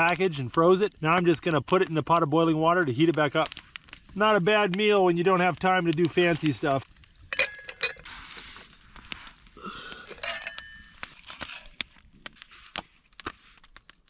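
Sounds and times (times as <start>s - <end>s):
metal cooking pot clinking: 7.3s - 8.0s, 10.1s - 11.0s.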